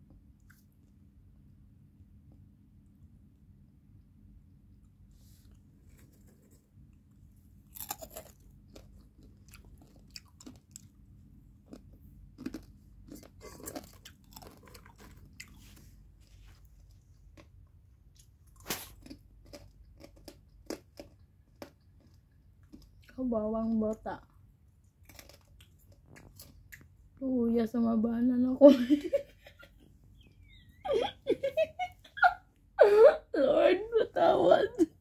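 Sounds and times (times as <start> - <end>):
popcorn crunching: 7.6 - 23.2, 24.9 - 26.9.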